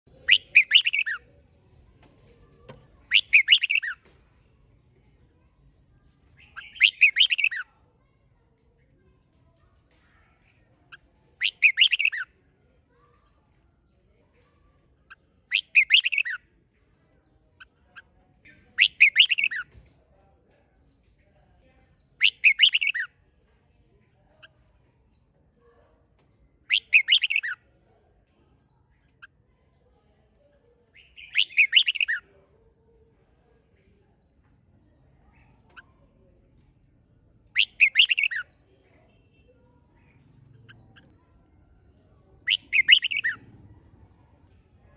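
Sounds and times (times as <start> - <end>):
bird song phrases: 0.1 - 44.9
faint short bird chirps: 0.2 - 1.2, 2.5 - 4.1, 6.5 - 7.7, 11.4 - 12.3, 15.5 - 16.4, 18.8 - 19.7, 26.7 - 27.6, 31.0 - 32.2, 42.5 - 43.4.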